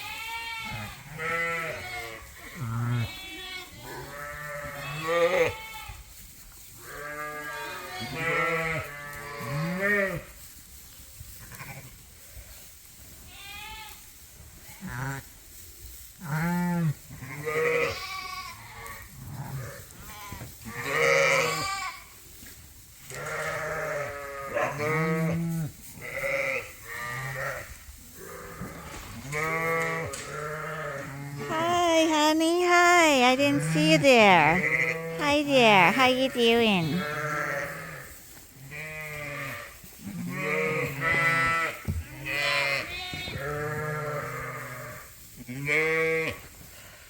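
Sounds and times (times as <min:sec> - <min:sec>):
sheep bleating: 0:00.0 - 0:05.9, 0:06.8 - 0:10.3, 0:16.3 - 0:22.1, 0:23.1 - 0:28.6, 0:29.3 - 0:38.0, 0:38.7 - 0:46.4.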